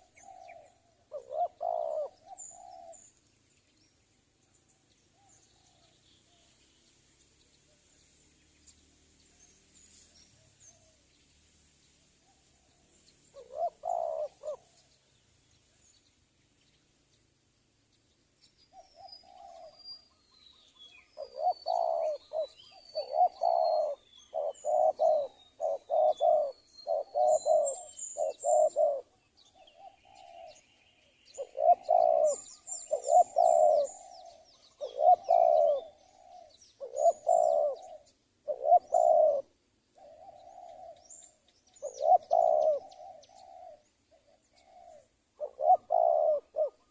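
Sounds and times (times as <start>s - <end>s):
doves cooing: 0.0s - 3.1s, 12.2s - 14.9s, 18.7s - 20.2s, 21.1s - 30.6s, 31.3s - 46.9s
small birds chirping: 0.0s - 46.9s.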